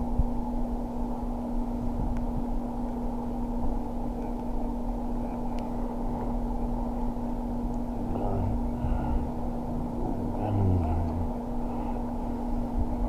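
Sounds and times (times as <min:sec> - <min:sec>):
faint voices: 0:07.9 - 0:11.4.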